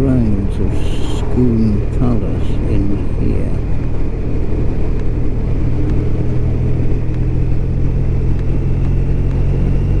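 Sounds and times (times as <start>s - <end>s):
road and wind noise: 0.0s - 10.0s.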